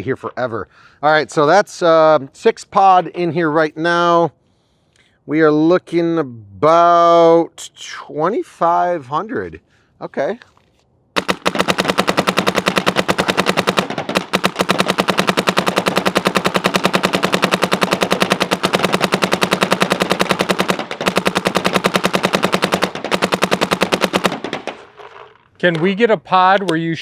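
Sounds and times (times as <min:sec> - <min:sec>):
paintball marker firing rapidly: 0:11.2 - 0:24.9.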